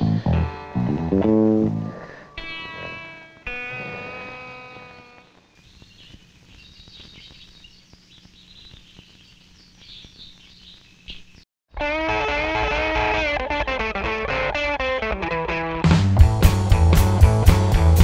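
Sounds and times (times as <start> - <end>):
high bird chirps: 5.6 - 11.5
electric guitar chord ringing: 11.8 - 15.9.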